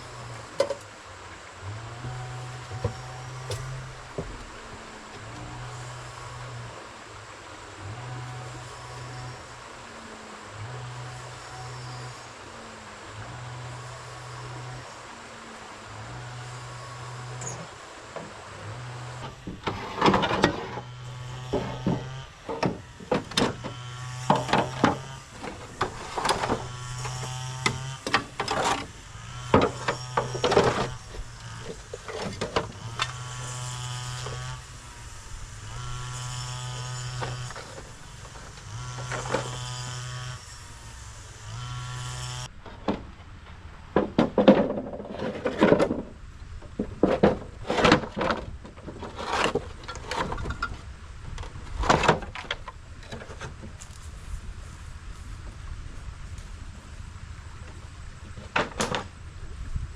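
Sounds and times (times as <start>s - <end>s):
small electric motor running: 0.0s - 42.6s
sharp knocks and clatter: 2.0s - 4.6s, 19.2s - 34.5s, 42.2s - 46.1s, 46.7s - 50.8s.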